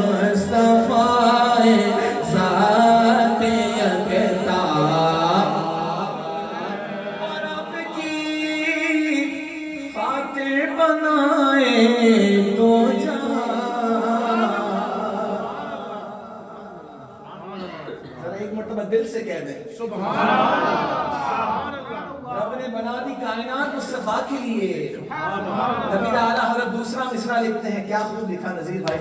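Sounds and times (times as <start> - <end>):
man singing: 0.0 - 6.4, 7.2 - 15.4.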